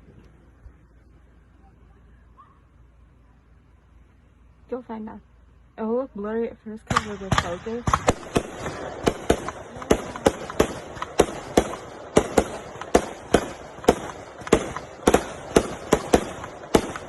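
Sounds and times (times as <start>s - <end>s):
continuous hiss: 0.0s - 17.0s
fireworks bangs: 6.9s - 17.0s.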